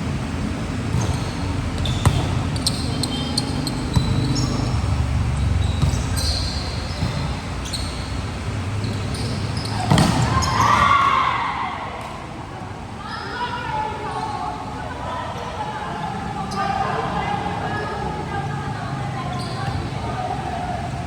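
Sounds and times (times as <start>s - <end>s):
sneakers squeaking on court floor: 0.0s - 11.2s, 13.0s - 15.7s, 18.8s - 21.0s
volleyball hits: 0.7s - 12.2s
players shouting: 1.6s - 21.0s.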